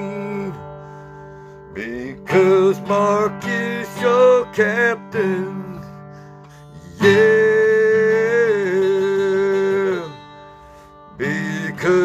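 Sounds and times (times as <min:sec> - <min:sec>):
country song with acoustic guitar: 0:00.0 - 0:12.0.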